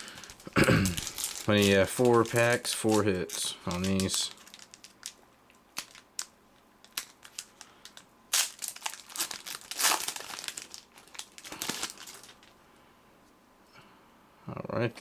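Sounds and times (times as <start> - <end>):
wrapper crinkling and tearing: 0.0 - 12.6.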